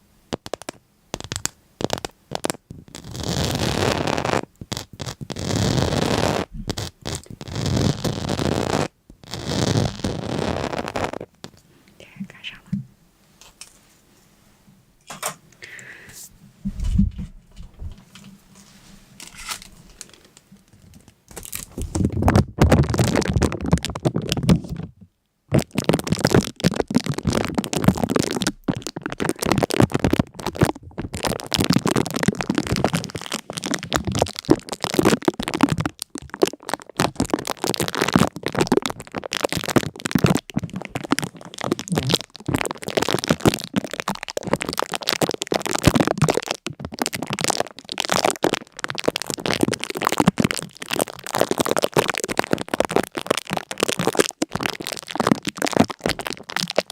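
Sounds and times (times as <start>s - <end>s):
dense crackling and crinkling: 0.0s - 56.9s.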